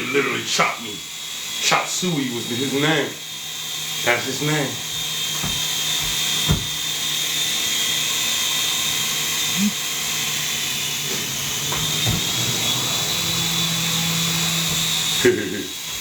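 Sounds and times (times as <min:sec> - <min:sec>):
toy helicopter motor whine: 0:00.0 - 0:16.0
brief knocks: 0:05.0 - 0:06.9
low hum: 0:09.5 - 0:15.2.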